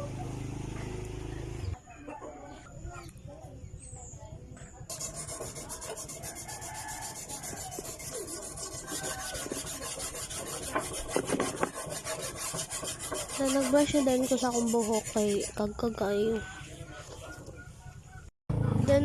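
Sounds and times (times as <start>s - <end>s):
brush scrubbing: 4.9s - 15.7s.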